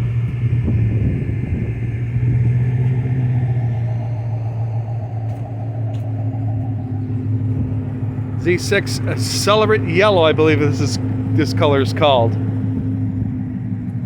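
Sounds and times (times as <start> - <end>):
car engine idling: 0.0 - 14.0
faint higher tone: 2.2 - 11.3.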